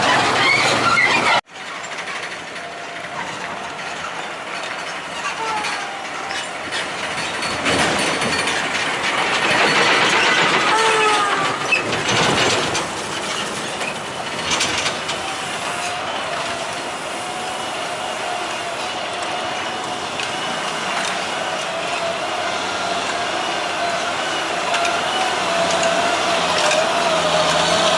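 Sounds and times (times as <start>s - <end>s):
rattling and clanking of load: 0.0s - 27.9s
truck engine straining: 0.0s - 27.9s.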